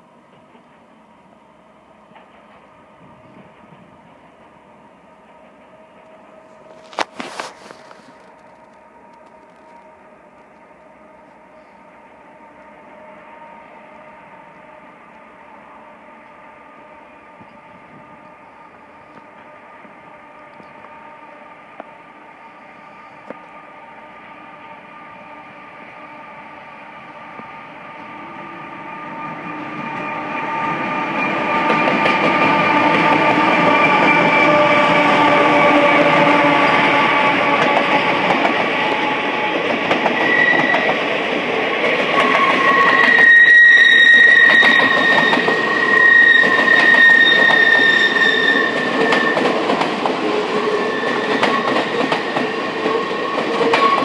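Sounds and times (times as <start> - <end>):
diesel locomotives passing: 0.0 - 54.0
train wheels clacking: 29.1 - 54.0
wheels squealing: 42.1 - 54.0.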